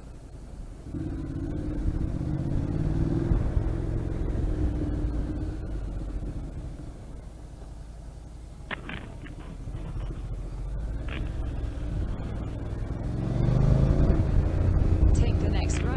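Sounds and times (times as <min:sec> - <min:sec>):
motorcycle engine revving: 0:00.8 - 0:07.4, 0:08.7 - 0:15.9.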